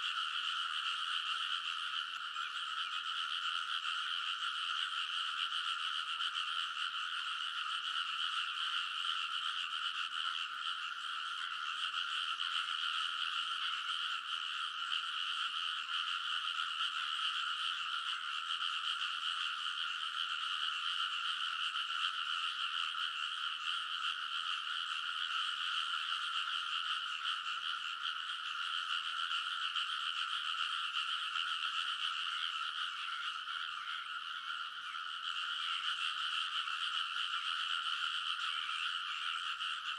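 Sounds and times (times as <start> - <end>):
chorus of frogs croaking: 0.0 - 39.9.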